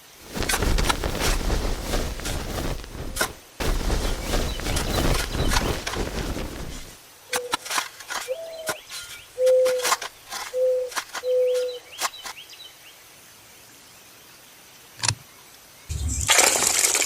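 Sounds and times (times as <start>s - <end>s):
faint bird chirps: 10.5s - 12.8s.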